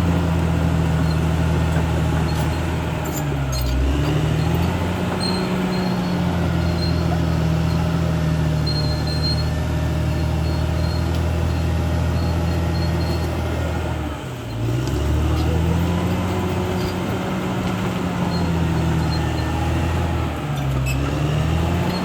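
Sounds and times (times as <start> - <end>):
bulldozer diesel engine running: 0.0 - 22.0
faint high squeaks: 2.2 - 13.5, 18.2 - 19.6, 20.5 - 21.1.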